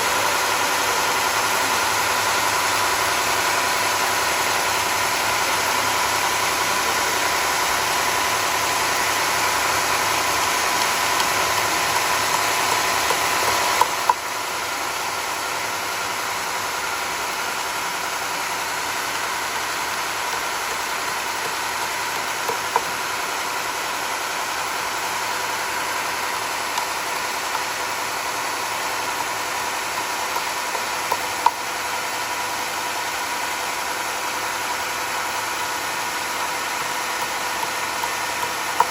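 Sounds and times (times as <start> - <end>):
sawmill mechanical whine: 0.0 - 38.9
sharp clicks: 37.1 - 38.9.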